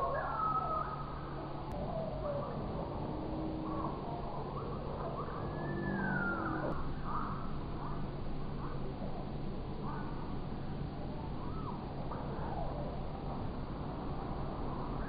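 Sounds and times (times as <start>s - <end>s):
birds calling: 0.0s - 8.0s
steady low hum: 0.0s - 15.0s.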